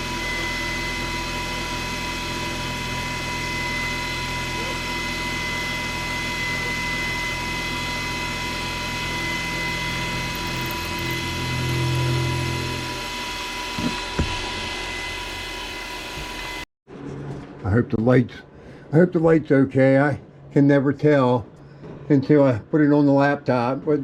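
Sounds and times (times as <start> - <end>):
milling machine cutting with whine: 0.0 - 16.6.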